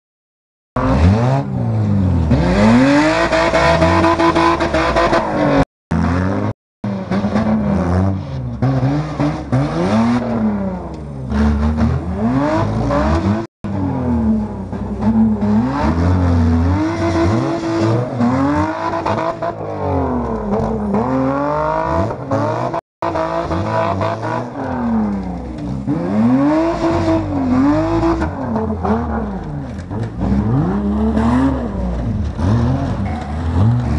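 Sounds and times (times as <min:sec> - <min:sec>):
car engines revving: 0:00.8 - 0:33.9.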